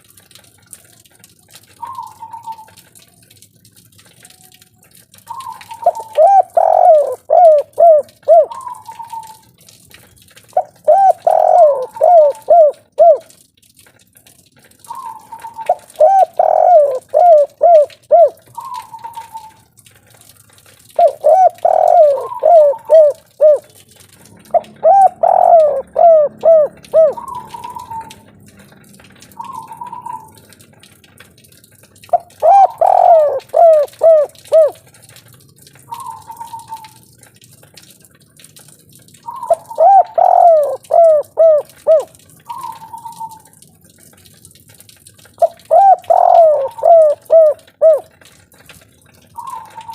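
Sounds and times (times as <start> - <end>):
dove cooing: 1.8 - 2.8, 5.3 - 9.4, 10.6 - 13.4, 14.9 - 19.7, 21.0 - 23.8, 24.4 - 28.3, 29.3 - 30.4, 32.1 - 34.8, 35.9 - 37.0, 39.2 - 43.5, 45.4 - 48.2, 49.4 - 49.9.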